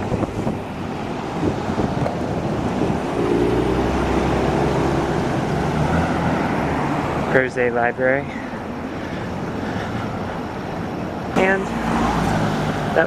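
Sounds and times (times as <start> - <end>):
wind on microphone: 0.0 - 6.7
road traffic: 0.0 - 13.0
vehicle engine running nearby: 0.0 - 13.0.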